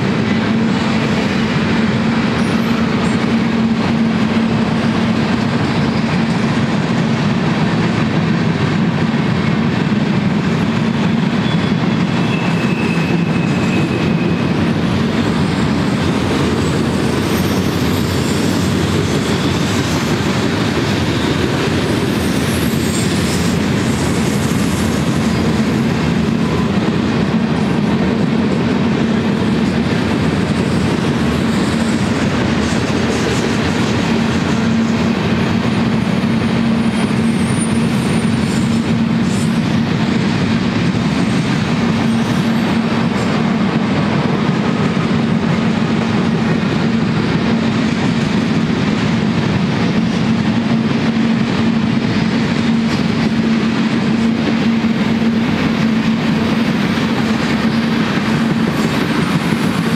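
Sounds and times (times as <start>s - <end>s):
freight train wheels rumbling: 0.0s - 59.9s
faint wheel squeal: 11.3s - 14.5s.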